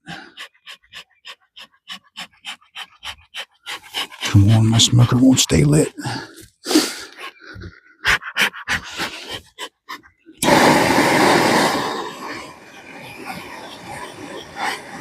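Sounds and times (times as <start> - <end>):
loud rush of air: 10.4 - 12.6
smoker bellows puffing: 10.4 - 12.8.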